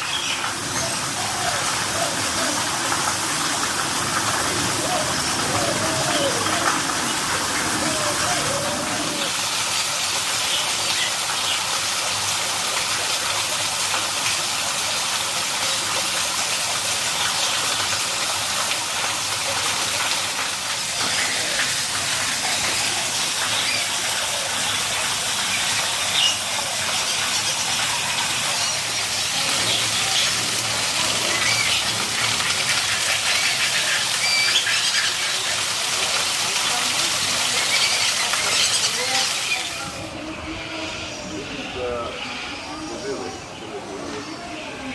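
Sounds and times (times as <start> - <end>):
faint voices: 0.5 - 9.4, 20.0 - 32.8, 34.8 - 44.9.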